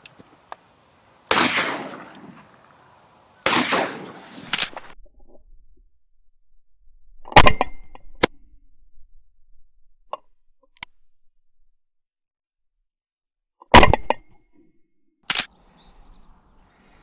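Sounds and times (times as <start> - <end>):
shotgun shots: 1.3 - 2.5, 3.4 - 5.0.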